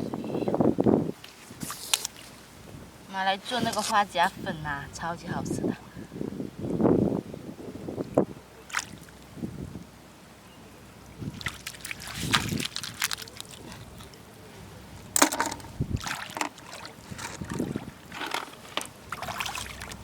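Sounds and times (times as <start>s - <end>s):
water sloshing: 8.6s - 9.4s, 11.0s - 20.0s.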